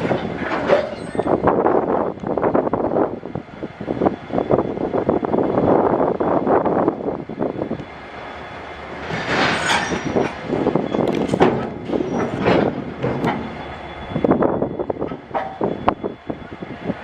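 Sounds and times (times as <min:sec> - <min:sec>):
freight train wagons clattering: 0:00.0 - 0:03.2, 0:03.8 - 0:17.0
high wheel squeals: 0:00.4 - 0:01.5, 0:07.4 - 0:17.0.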